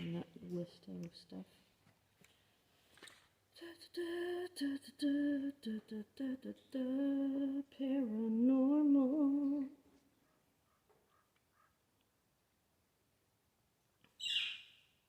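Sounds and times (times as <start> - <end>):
person humming a tune: 3.6 - 9.8.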